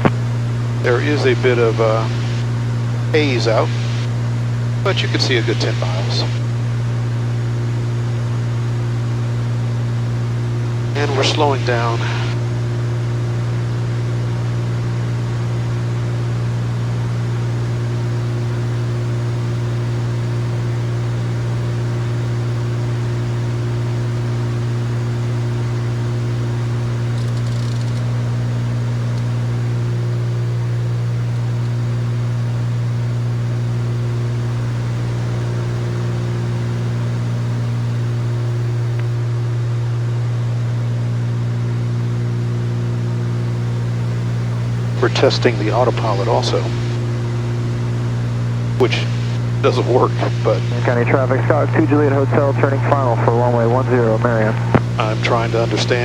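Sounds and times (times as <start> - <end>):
cabin air noise: 0.0 - 7.1, 10.8 - 12.6, 16.8 - 39.3, 42.7 - 56.0
airplane engines droning: 0.0 - 39.6, 41.5 - 56.0.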